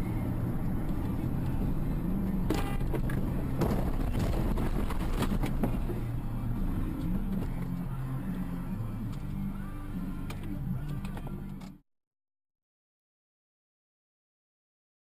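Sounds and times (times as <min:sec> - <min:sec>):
car engine and road noise: 0:00.0 - 0:11.8.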